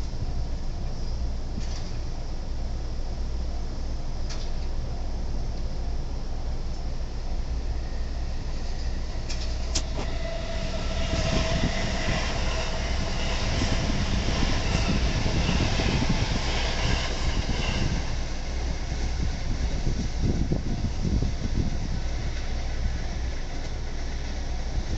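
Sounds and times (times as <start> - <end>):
train wheels clattering on rails: 8.4 - 24.9.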